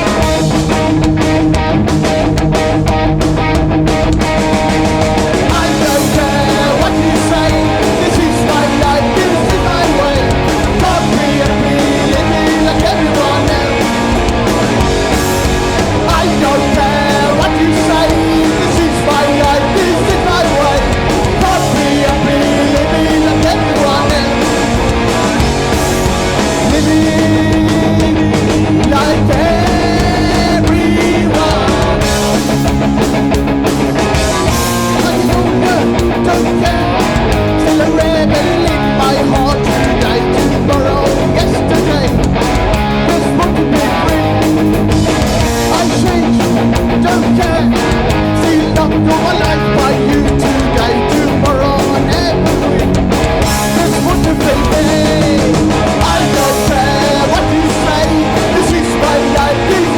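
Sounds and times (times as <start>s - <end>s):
drums hitting: 0.0s - 59.9s
punk band playing live: 0.0s - 59.9s.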